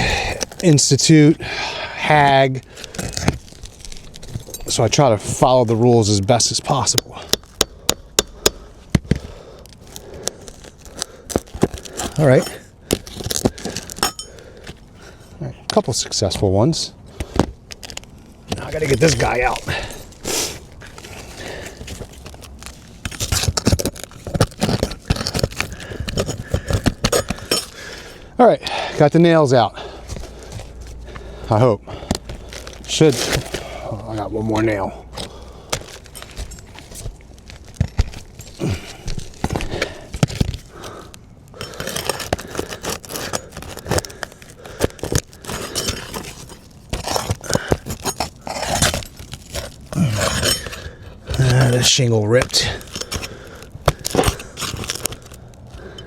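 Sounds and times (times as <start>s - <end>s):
metal tool scraping shingles: 9.9s - 14.5s, 17.8s - 28.0s, 41.6s - 56.0s.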